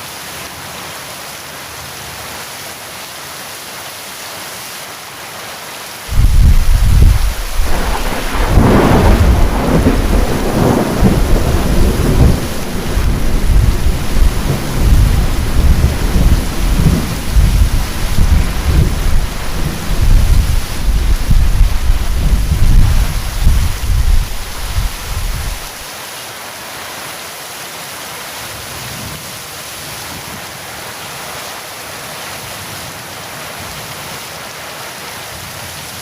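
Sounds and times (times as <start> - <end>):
heavy rain falling: 0.0 - 36.0
thunder rumbling and cracking: 6.1 - 25.8.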